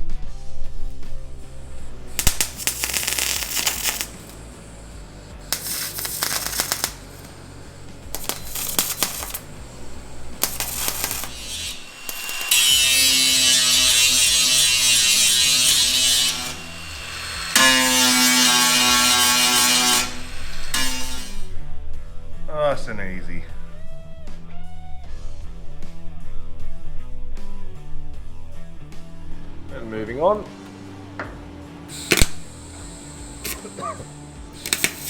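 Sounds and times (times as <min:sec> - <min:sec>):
angle grinder whining: 0:01.4 - 0:21.5, 0:31.2 - 0:35.0
welding crackling on sheet steel: 0:02.1 - 0:21.5, 0:31.9 - 0:35.0.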